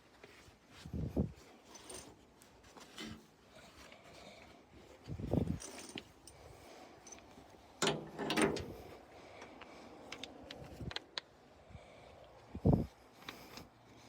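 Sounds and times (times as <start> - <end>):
mechanical rattling clatter: 7.8 - 8.8.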